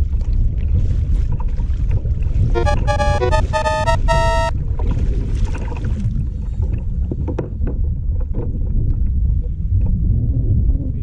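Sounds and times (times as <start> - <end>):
water: 0.0 - 2.5, 4.7 - 11.0
short musical notes: 2.6 - 4.5.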